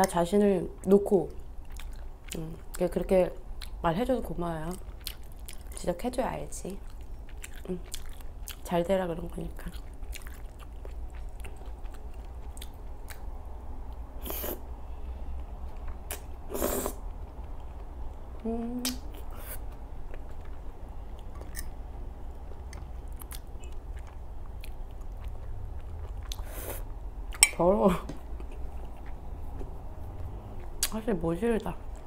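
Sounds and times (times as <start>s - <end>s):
wet open-mouthed chewing: 4.7s - 5.8s, 6.8s - 8.7s, 9.6s - 13.3s, 22.4s - 27.4s, 28.4s - 31.0s
person humming with mouth full: 18.4s - 19.0s.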